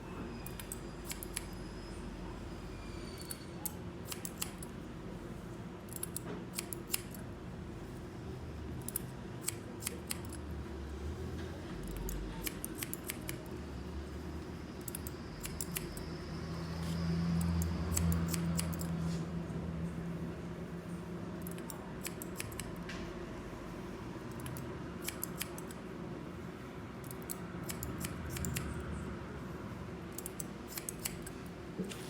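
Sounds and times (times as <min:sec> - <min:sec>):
scissors snipping hair: 0:03.6 - 0:04.6, 0:08.8 - 0:10.4, 0:11.8 - 0:13.4, 0:17.4 - 0:19.0, 0:21.4 - 0:22.8, 0:24.3 - 0:25.8, 0:27.0 - 0:28.8, 0:30.1 - 0:31.3.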